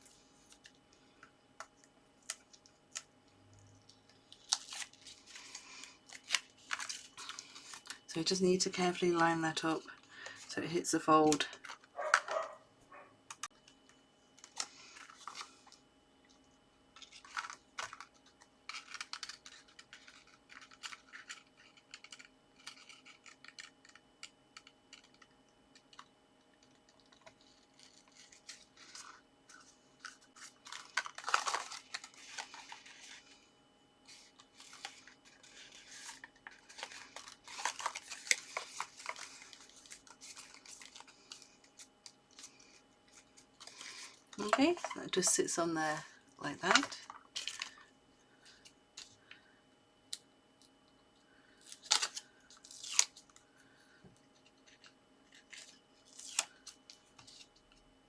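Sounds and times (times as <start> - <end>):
paper rustling and scraping: 4.3 - 8.0, 14.4 - 15.8, 17.0 - 24.0, 26.6 - 45.4.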